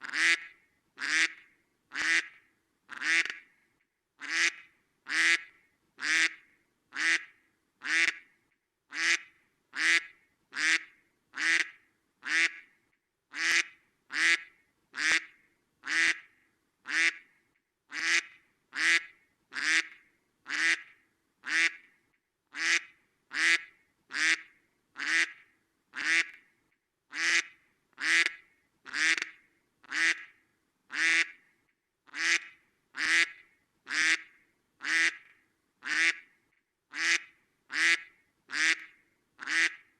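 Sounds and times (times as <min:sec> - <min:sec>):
duck quacking: 0:00.0 - 0:03.4, 0:04.2 - 0:06.4, 0:07.0 - 0:08.2, 0:08.9 - 0:12.6, 0:13.3 - 0:15.3, 0:15.9 - 0:16.3, 0:16.9 - 0:17.2, 0:17.9 - 0:21.8, 0:22.5 - 0:25.4, 0:26.0 - 0:26.4, 0:27.1 - 0:30.3, 0:30.9 - 0:31.4, 0:32.1 - 0:35.2, 0:35.8 - 0:36.2, 0:36.9 - 0:39.9.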